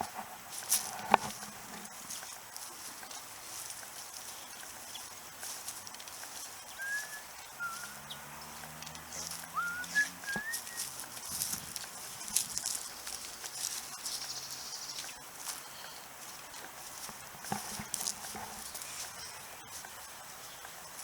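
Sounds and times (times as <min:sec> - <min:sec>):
footsteps rustling through grass: 0:00.0 - 0:21.0
high-pitched calls: 0:06.4 - 0:11.3.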